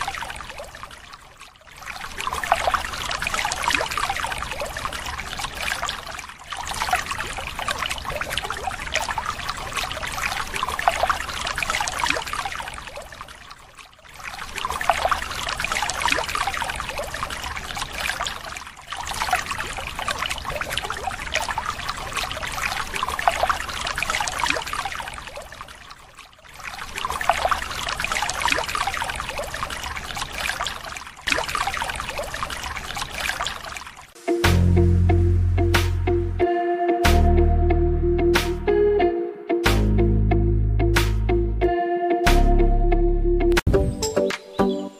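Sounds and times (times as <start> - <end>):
water pouring into tank: 0.0 - 34.2.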